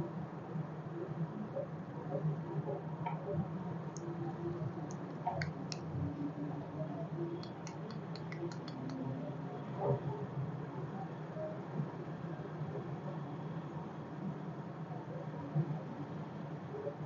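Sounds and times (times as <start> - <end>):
faint steady hum: 0.0 - 17.0
small parts clicking and tapping: 7.4 - 9.0.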